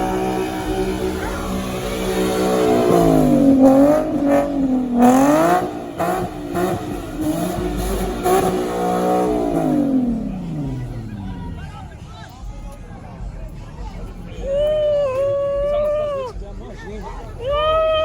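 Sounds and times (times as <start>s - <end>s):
car engine revving hard: 0.0s - 12.1s.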